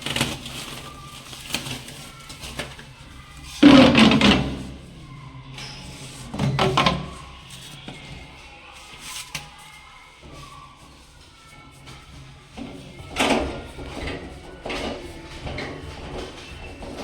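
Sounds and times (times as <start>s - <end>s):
faint background music: 0.0s - 17.0s
loud clattering knocks: 3.6s - 4.8s.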